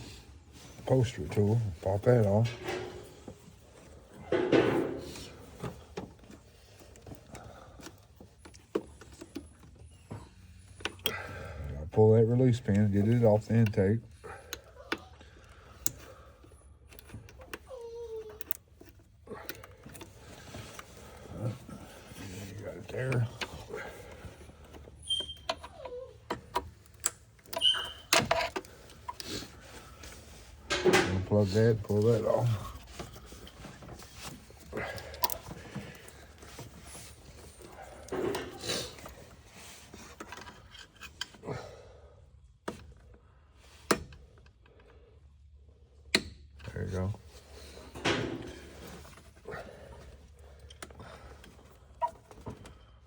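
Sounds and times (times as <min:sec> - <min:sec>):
tool and plastic clicks and knocks: 0:04.2 - 0:09.8, 0:26.3 - 0:29.4, 0:30.7 - 0:31.3, 0:32.8 - 0:36.9
short squeaks: 0:25.0 - 0:26.5, 0:27.5 - 0:28.5.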